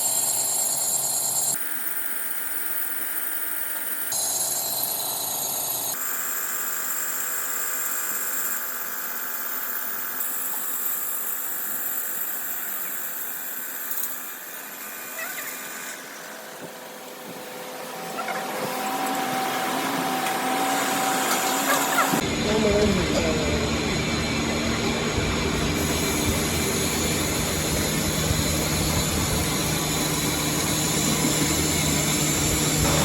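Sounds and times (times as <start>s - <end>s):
workshop machinery whining: 11.2s - 33.0s.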